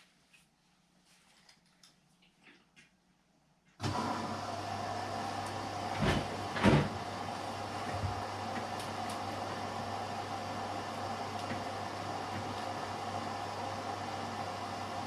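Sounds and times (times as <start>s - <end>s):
washer-dryer humming: 3.7s - 15.0s.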